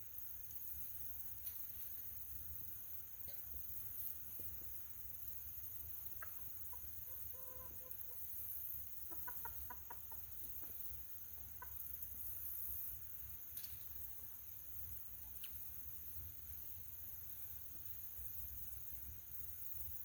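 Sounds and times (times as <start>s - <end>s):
hens clucking: 6.1s - 8.3s, 9.0s - 12.2s.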